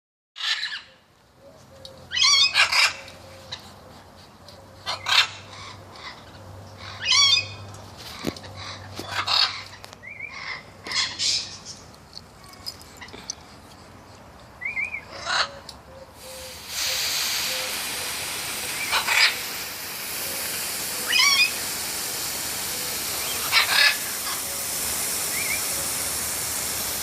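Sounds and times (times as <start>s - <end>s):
pet bird calling: 13.9s - 17.7s.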